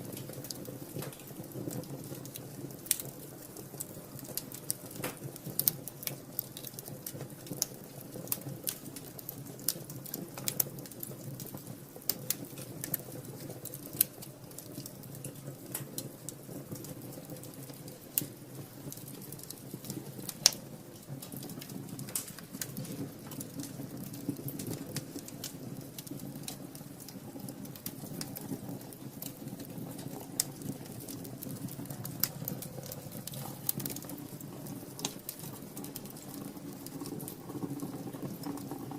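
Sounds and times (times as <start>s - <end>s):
low rumble of flames: 0.0s - 38.9s
wood fire crackling and popping: 0.0s - 38.9s.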